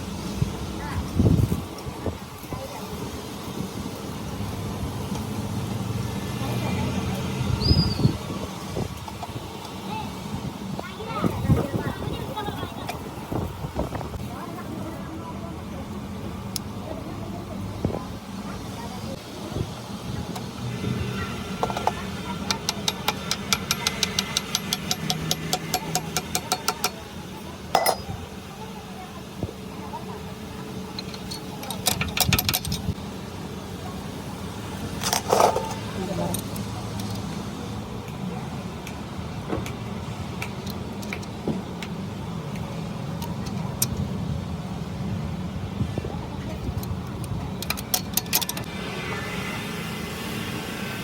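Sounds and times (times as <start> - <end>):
rapid sharp metallic clicks: 22.5 - 27.0.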